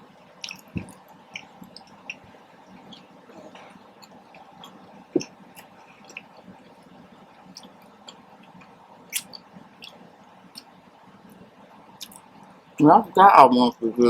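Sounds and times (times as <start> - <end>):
chewing mouth clicks and smacks: 0.4 - 2.2, 2.8 - 6.5, 7.5 - 10.7, 12.0 - 12.3.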